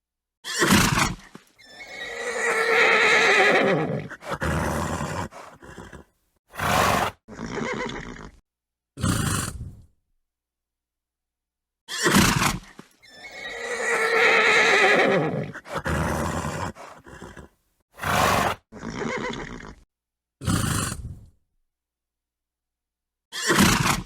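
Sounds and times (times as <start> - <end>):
horse whinnying: 0.4 - 8.4, 11.9 - 19.8
horse snorting: 0.6 - 8.4, 9.0 - 9.9, 12.0 - 19.8, 20.4 - 21.3.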